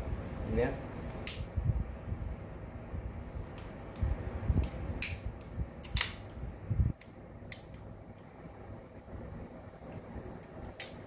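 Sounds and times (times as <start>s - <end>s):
pistol metal clicks: 1.1s - 1.5s, 4.6s - 6.3s.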